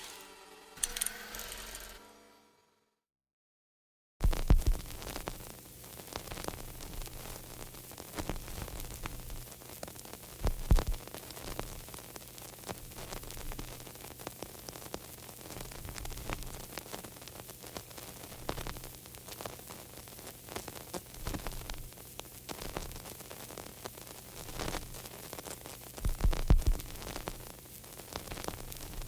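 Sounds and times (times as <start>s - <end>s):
crackling static: 4.2s - 29.0s.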